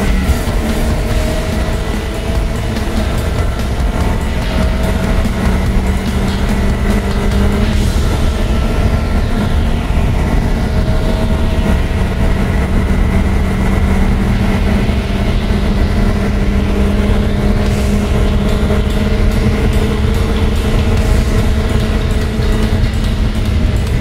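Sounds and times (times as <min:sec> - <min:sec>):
car engine at high revs: 0:00.0 - 0:24.0
road and wind noise: 0:00.0 - 0:24.0.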